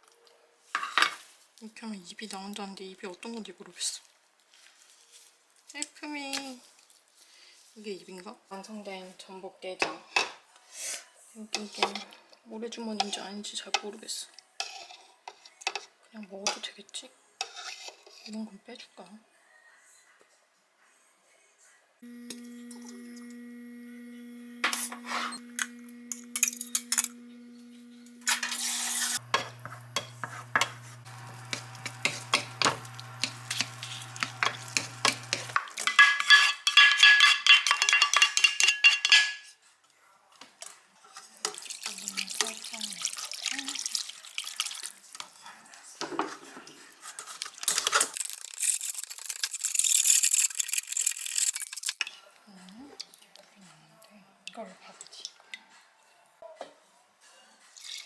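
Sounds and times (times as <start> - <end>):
steady low hum: 22.0 - 28.3
utensils and dishes clinking: 24.6 - 39.5.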